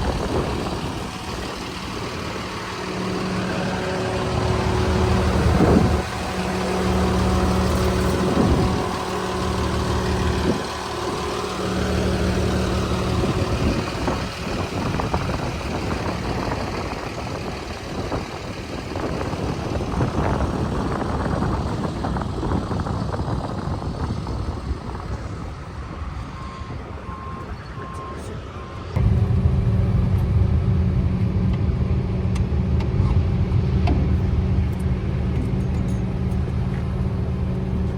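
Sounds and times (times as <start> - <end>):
hose reel rewinding hum: 0.0 - 23.5
truck engine running: 0.0 - 37.9.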